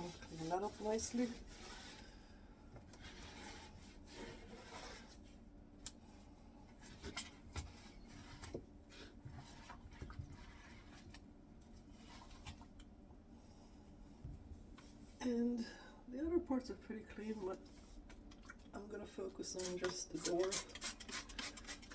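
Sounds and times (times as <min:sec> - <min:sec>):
rubbing and wiping: 0:00.0 - 0:02.1.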